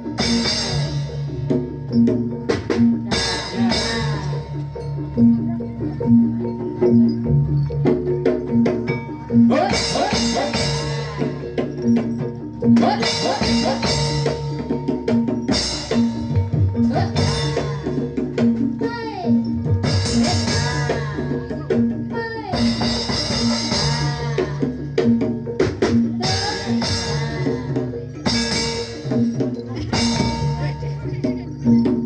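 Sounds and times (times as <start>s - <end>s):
drums: 0.0s - 32.0s
person singing: 9.5s - 11.7s, 12.8s - 14.4s, 16.8s - 19.4s, 26.1s - 28.4s.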